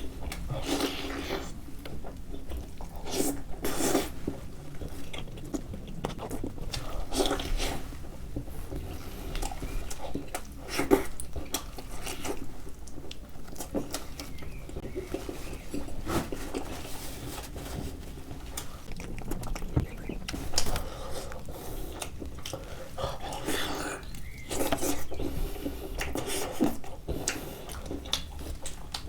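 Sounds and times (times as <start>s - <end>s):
wet chewing and lip-smacking: 0.0s - 29.0s.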